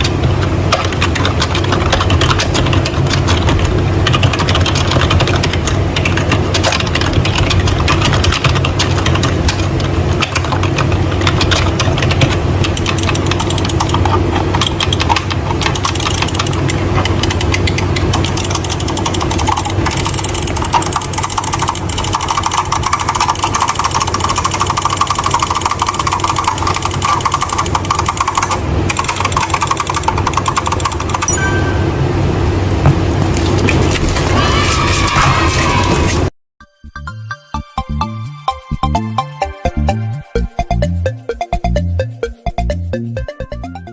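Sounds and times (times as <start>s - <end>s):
fast keyboard typing: 0.0s - 31.7s.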